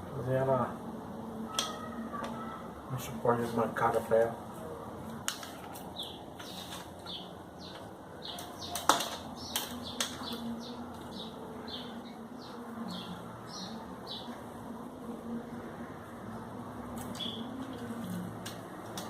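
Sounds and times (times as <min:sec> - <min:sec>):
small bird chirping: 0:17.0 - 0:18.2.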